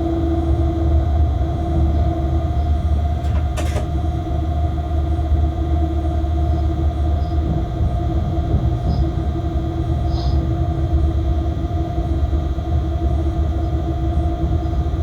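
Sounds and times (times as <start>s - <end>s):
locomotive rumbling: 0.0s - 5.7s.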